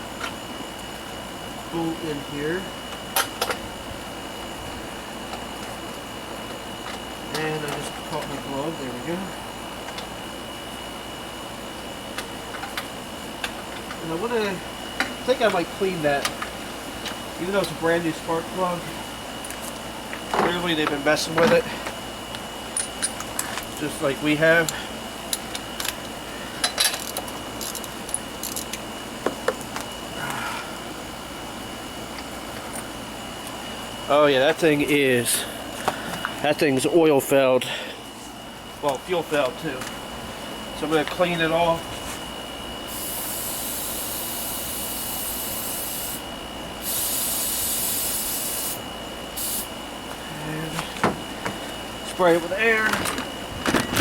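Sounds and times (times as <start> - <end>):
steady background hum: 0.0 - 54.0
spray hissing: 42.9 - 46.2, 46.8 - 48.8, 49.4 - 49.7.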